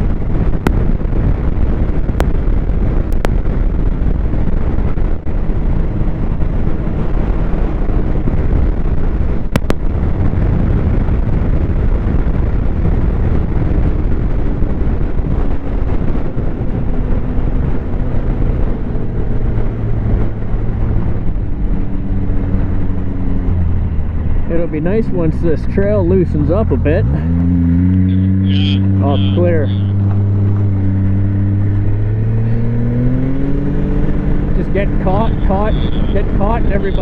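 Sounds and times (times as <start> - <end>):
wind buffeting on microphone: 0.0 - 37.0
snowmobile engine running: 24.5 - 37.0.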